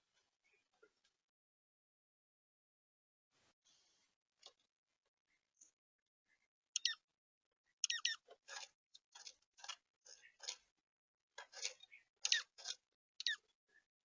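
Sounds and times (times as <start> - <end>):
small birds chirping: 0.0 - 1.1, 5.3 - 14.0
birds pecking at seed: 7.8 - 10.8, 11.4 - 13.6.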